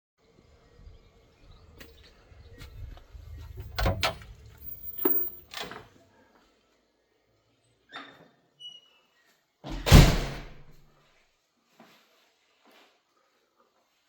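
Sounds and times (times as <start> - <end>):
low rumble: 0.8 - 5.1
sharp knocks and clunks: 3.6 - 4.4.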